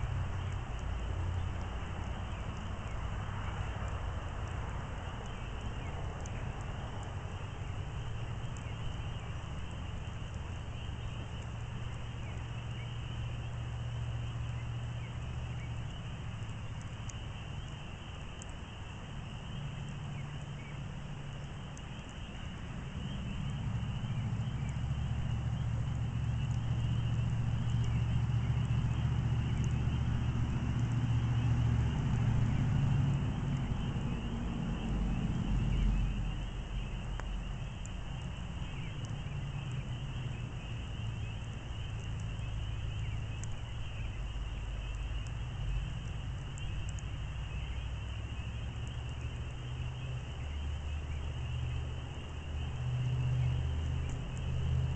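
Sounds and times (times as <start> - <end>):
campfire crackling: 0.0 - 54.9
low rumble: 22.7 - 54.9.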